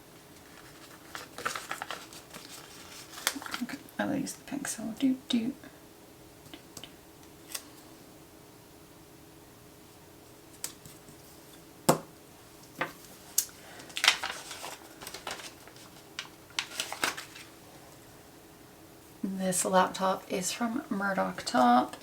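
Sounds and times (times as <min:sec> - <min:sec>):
paper rustling: 0:00.2 - 0:03.8, 0:12.9 - 0:17.6.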